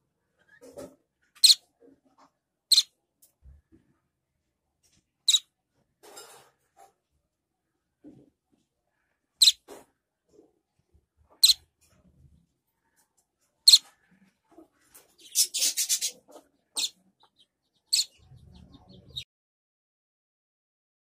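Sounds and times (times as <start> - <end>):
fledgling bird chirping: 1.4 - 1.7, 2.7 - 3.0, 5.2 - 5.5, 9.4 - 9.7, 11.3 - 11.7, 13.6 - 19.3.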